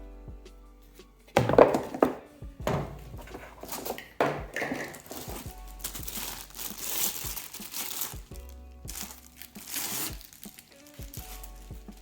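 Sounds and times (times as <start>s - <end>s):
background music: 0.0s - 12.0s
packaging crinkling: 3.2s - 8.3s.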